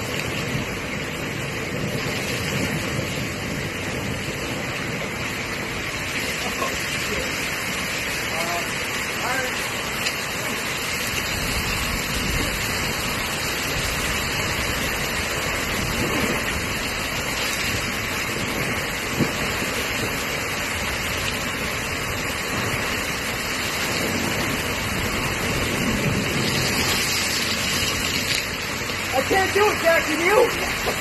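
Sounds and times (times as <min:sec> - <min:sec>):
water rushing: 0:00.0 - 0:31.0.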